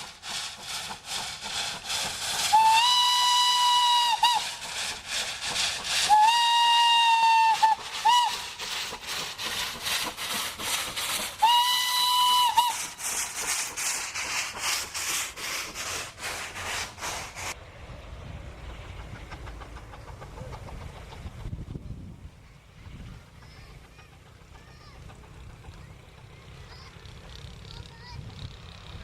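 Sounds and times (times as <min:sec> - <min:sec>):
locomotive chuffing exhaust: 0:00.0 - 0:29.0
steam locomotive whistle blasts: 0:02.4 - 0:04.6, 0:06.0 - 0:08.6, 0:11.4 - 0:13.0.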